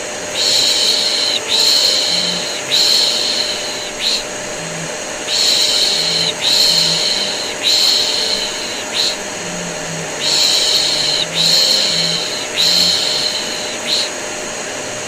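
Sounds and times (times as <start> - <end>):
vacuum cleaner humming: 0.0 - 15.0
person shushing: 0.4 - 14.2.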